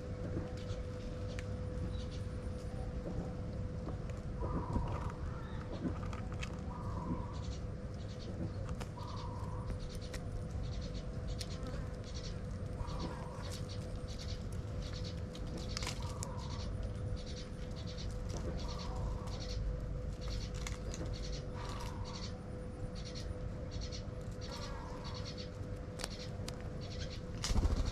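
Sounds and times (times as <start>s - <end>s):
faint hum and low rumble: 0.0s - 27.9s
birds calling in pulsed bursts: 6.6s - 27.9s.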